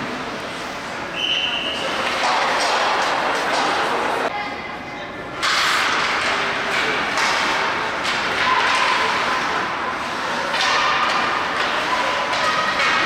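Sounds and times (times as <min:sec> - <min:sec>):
skates scraping ice: 0:01.6 - 0:04.3, 0:05.5 - 0:13.0.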